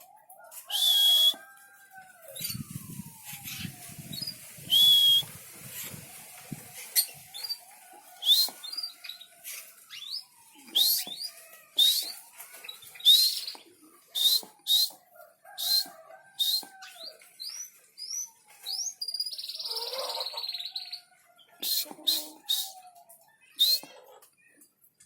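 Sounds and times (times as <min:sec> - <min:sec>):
songbird chirping: 0:00.0 - 0:25.0
wavering low whistle: 0:00.7 - 0:01.4, 0:02.2 - 0:07.1, 0:08.2 - 0:08.6, 0:10.7 - 0:11.1, 0:11.8 - 0:12.2, 0:14.2 - 0:15.0, 0:15.6 - 0:16.8.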